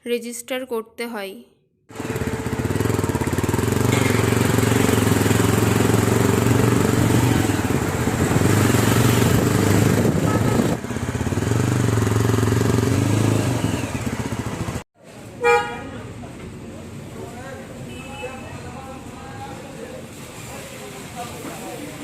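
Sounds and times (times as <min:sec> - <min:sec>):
motorcycle engine running: 0:01.9 - 0:14.8
wind noise on microphone: 0:08.0 - 0:10.8.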